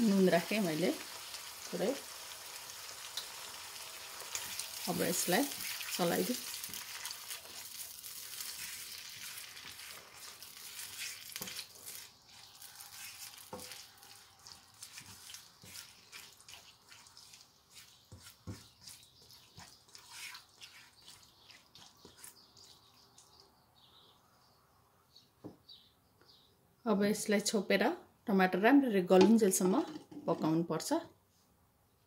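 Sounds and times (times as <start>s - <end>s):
vegetables sizzling in oil: 0.0s - 20.8s
spatula scraping a wok: 5.2s - 23.0s.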